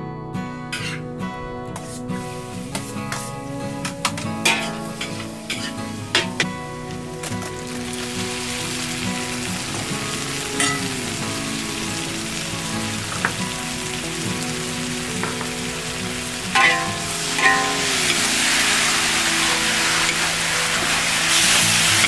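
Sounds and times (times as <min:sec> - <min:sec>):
soft background music: 0:00.0 - 0:22.0
chilies sizzling in hot oil: 0:04.4 - 0:22.0.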